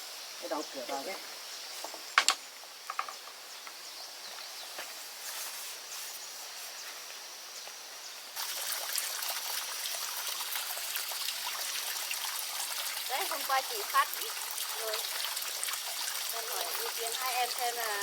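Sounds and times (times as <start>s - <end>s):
high insect hum: 0.0s - 11.0s
water trickling and splashing: 8.3s - 18.0s.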